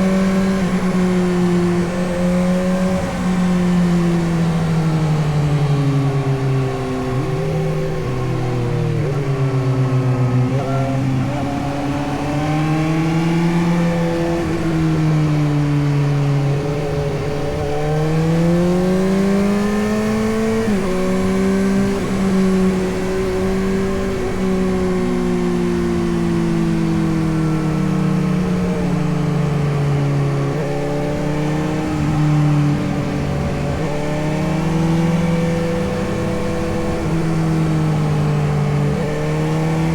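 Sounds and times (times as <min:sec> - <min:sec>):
motorcycle engine revving: 0:15.9 - 0:39.9.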